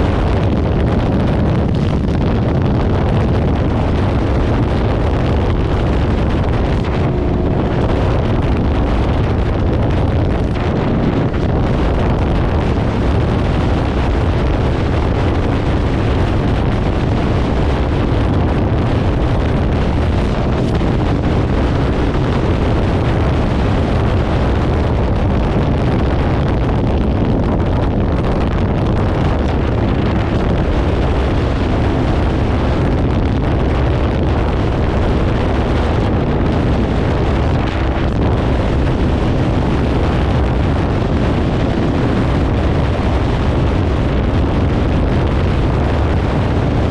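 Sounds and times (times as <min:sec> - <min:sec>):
motorcycle engine running: 0:00.0 - 0:25.5
wind buffeting microphone: 0:00.0 - 0:46.9.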